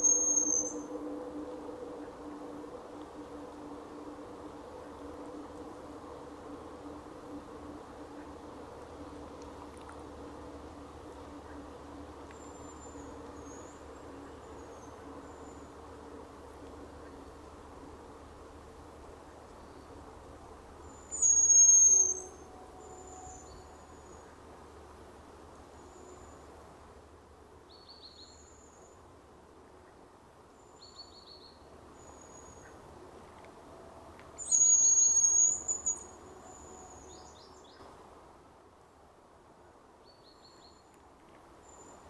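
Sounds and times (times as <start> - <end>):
grouse whistling: 0.0 - 1.2, 21.1 - 23.6, 34.4 - 37.1.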